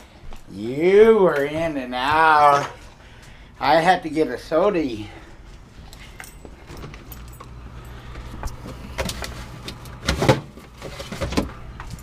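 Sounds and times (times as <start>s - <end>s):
steady low hum: 0.0s - 12.0s
knocks and clatter in refrigerator: 10.0s - 11.6s.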